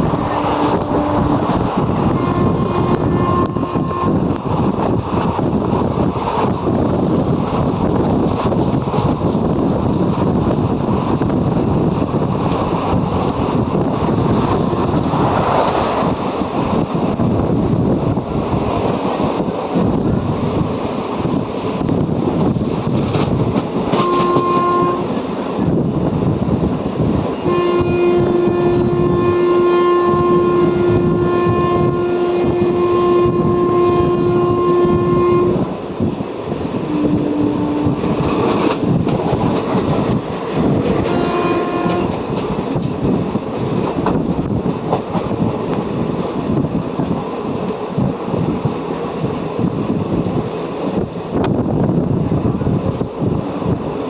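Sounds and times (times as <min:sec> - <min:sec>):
train horn blasts: 0:00.0 - 0:04.4, 0:14.5 - 0:15.6, 0:23.8 - 0:25.2, 0:27.3 - 0:35.8, 0:36.8 - 0:38.8, 0:40.7 - 0:42.3
train wheel and wind rumble: 0:00.0 - 0:54.0.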